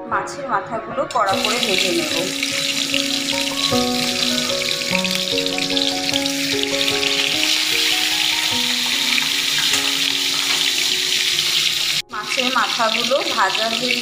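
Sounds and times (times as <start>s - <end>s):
background music with held notes: 0.0s - 14.0s
fish frying in hot oil: 1.3s - 14.0s.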